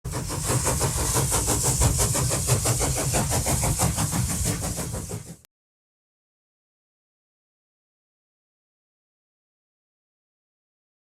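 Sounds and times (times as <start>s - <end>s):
railway locomotive running: 0.1s - 5.5s.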